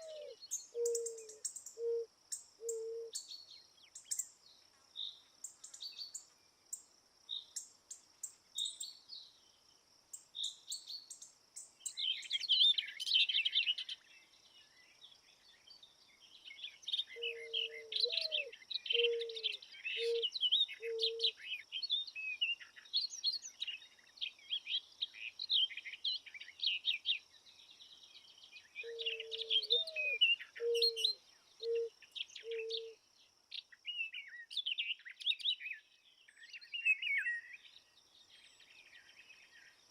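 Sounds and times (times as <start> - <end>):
low bird cooing call: 0.0 - 3.2, 17.0 - 21.6, 28.8 - 33.0
songbirds chirping and trilling: 0.0 - 39.9.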